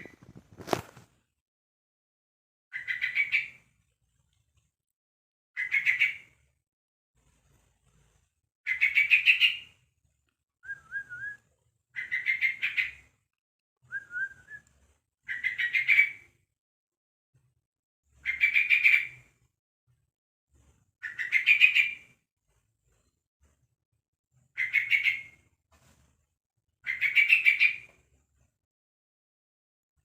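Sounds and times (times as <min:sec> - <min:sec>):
soft wavering bird whistles: 0:10.6 - 0:11.4, 0:13.9 - 0:14.7.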